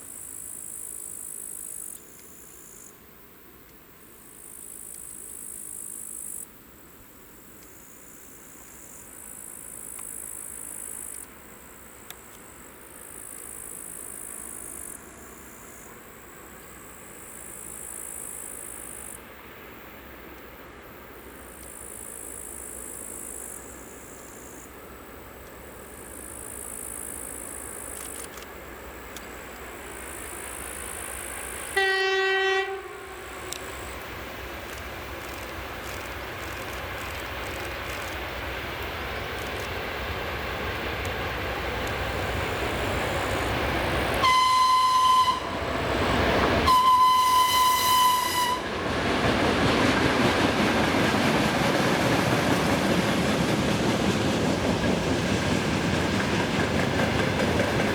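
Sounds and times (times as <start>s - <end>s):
diesel locomotive rumble: 24.8s - 57.9s
train horn blast: 31.7s - 33.6s, 44.2s - 45.9s, 46.6s - 48.8s.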